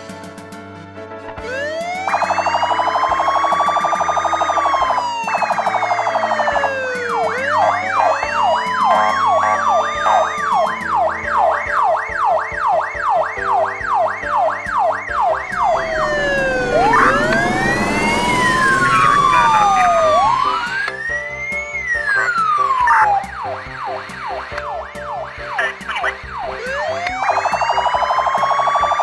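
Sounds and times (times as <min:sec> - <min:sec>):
simple background tune: 0:00.0 - 0:29.0
police siren yelp: 0:01.4 - 0:21.0, 0:25.2 - 0:29.0
police siren wail: 0:01.4 - 0:29.0
rushing noise: 0:14.6 - 0:24.6.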